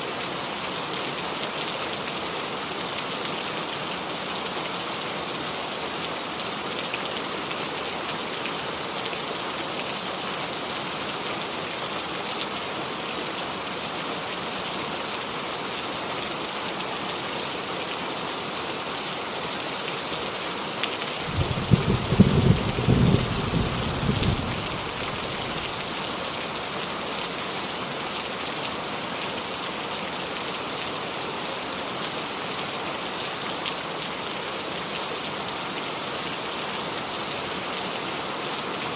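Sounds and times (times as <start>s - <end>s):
rain on a roof: 0.0s - 38.9s
thunder rumbling: 21.2s - 25.8s.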